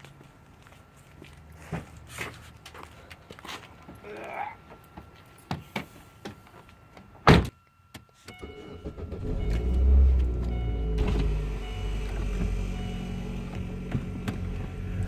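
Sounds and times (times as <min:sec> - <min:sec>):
car engine starting and idling: 0:08.3 - 0:15.0
car door shutting: 0:09.4 - 0:15.0.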